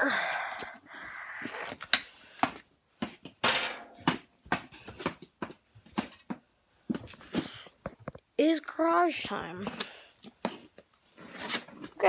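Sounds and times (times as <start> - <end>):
objects knocking and rustling: 3.0 - 8.2.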